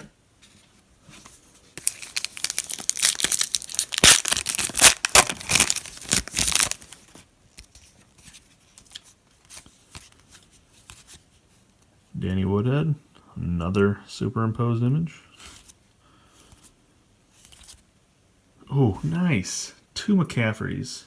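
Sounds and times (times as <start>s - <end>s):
foil wrapper tearing and crinkling: 1.8s - 7.1s.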